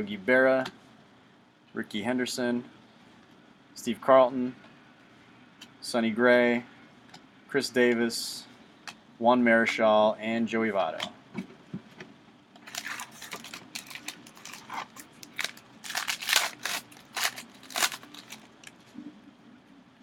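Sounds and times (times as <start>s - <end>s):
wrapper tearing and crinkling: 12.6s - 18.6s.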